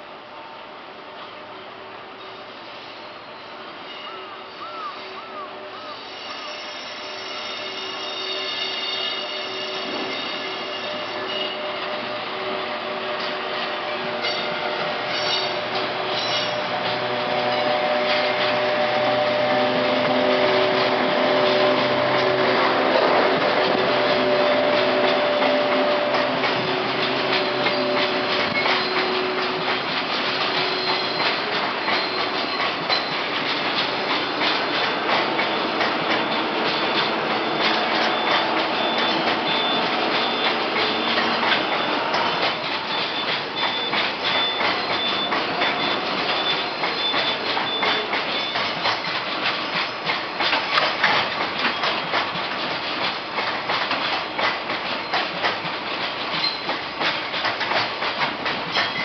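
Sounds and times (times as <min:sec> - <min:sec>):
electric locomotive whining: 0:00.0 - 0:59.0
freight wagons clicking over rail joints: 0:13.1 - 0:59.0.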